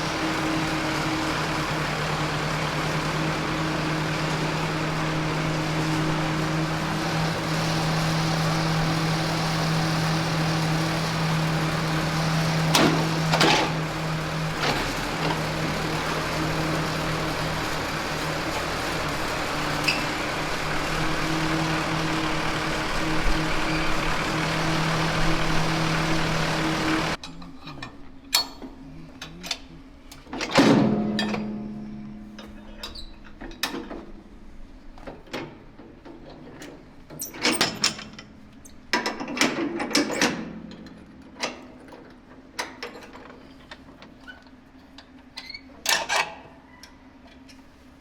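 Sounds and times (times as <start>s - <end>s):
tractor engine idling: 0.0s - 30.3s.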